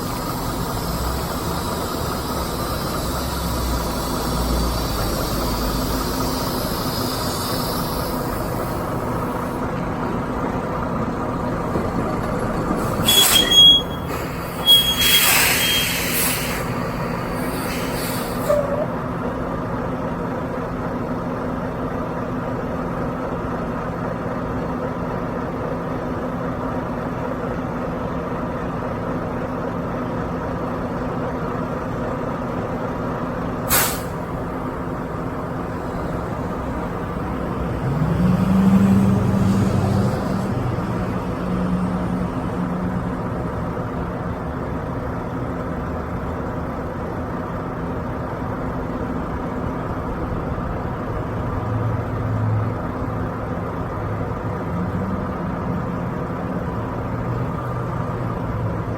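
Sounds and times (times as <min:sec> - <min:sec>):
air brake hiss: 0:00.0 - 0:09.6, 0:12.8 - 0:18.9, 0:33.6 - 0:34.4
diesel truck engine running: 0:00.0 - 0:58.9
engine revving: 0:37.4 - 0:41.8.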